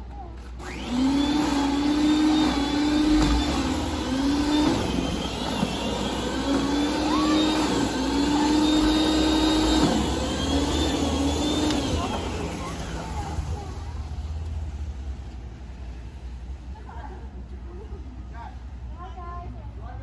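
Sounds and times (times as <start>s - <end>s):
snowblower engine running: 0.4s - 17.0s
impeller rushing noise: 2.1s - 15.2s.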